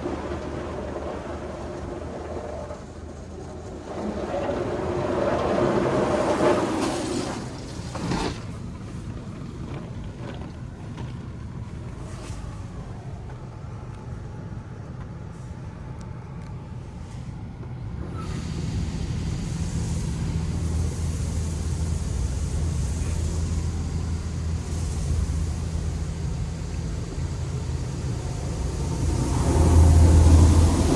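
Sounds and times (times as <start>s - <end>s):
car wash low rumble: 0.0s - 30.9s
louder hum and hiss: 18.1s - 30.9s.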